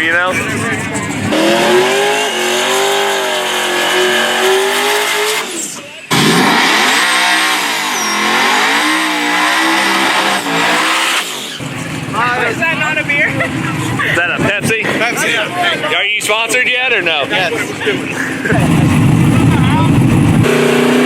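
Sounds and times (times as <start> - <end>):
race car engine at high revs: 0.3 - 13.0, 18.2 - 21.0.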